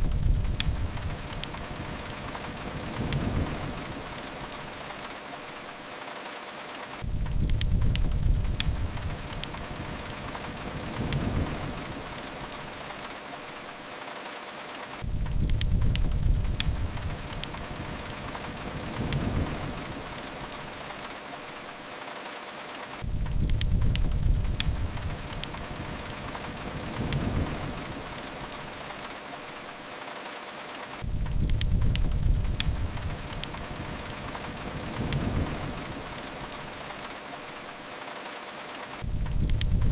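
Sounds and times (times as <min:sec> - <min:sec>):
low rumble: 0:00.0 - 0:01.9, 0:31.0 - 0:36.5
rain on a window: 0:00.0 - 0:39.9
wood fire crackling: 0:00.0 - 0:39.9.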